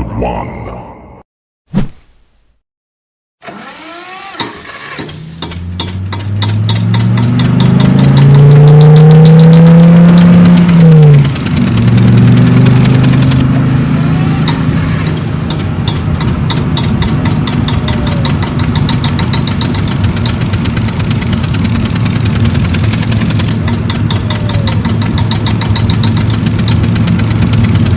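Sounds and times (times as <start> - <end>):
tractor engine idling: 11.2 - 27.9.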